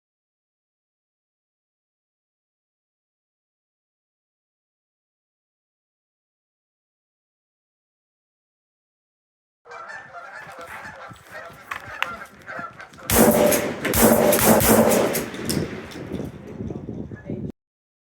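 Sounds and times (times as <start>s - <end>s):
geese honking: 9.7s - 14.4s
loud shotgun fire: 13.1s - 16.6s.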